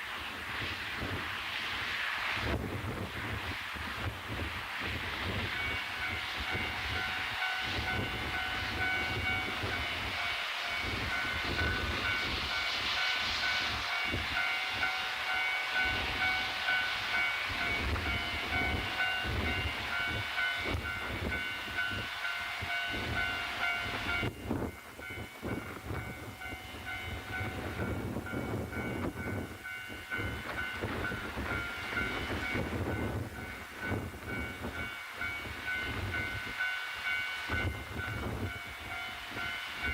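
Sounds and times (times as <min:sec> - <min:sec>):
diesel train whining: 0:00.0 - 0:39.9
wind rumble on microphone: 0:00.2 - 0:10.2, 0:22.9 - 0:36.6, 0:37.5 - 0:39.9.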